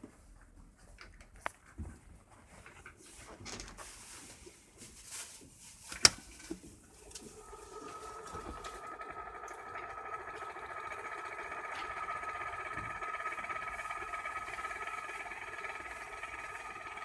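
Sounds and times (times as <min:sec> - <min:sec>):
small electric motor whining: 0:07.1 - 0:17.0.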